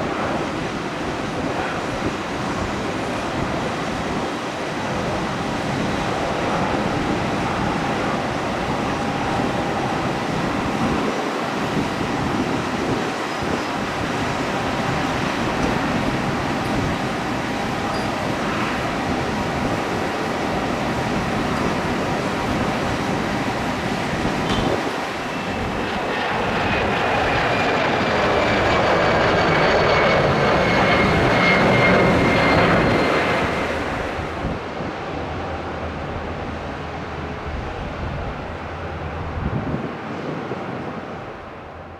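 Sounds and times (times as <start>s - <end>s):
jet engines running: 0.0s - 41.9s.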